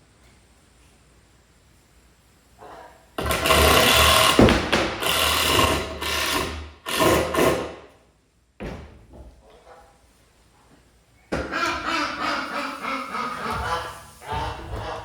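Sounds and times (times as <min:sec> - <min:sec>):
power driver driving screws: 0:03.2 - 0:07.7.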